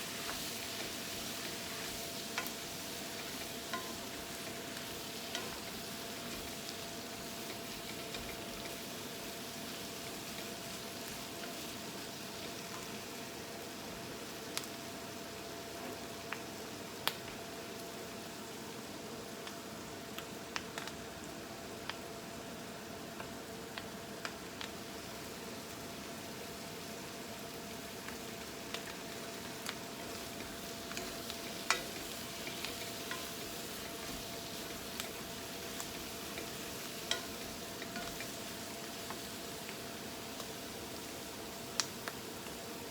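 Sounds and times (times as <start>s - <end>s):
food sizzling in a pan: 0.0s - 42.9s
utensil clicking against pan: 28.0s - 38.4s.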